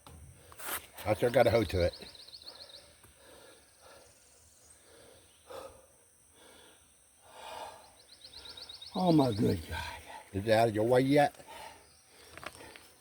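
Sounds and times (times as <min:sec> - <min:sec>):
man breathing heavily: 0:02.4 - 0:08.8, 0:09.6 - 0:10.4, 0:11.4 - 0:13.0.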